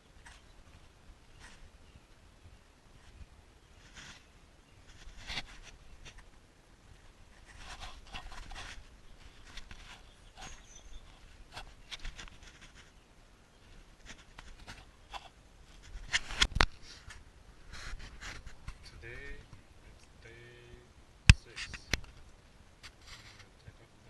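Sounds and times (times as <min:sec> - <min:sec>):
scrapes and clicks of handling: 0:14.0 - 0:18.9, 0:21.4 - 0:23.6.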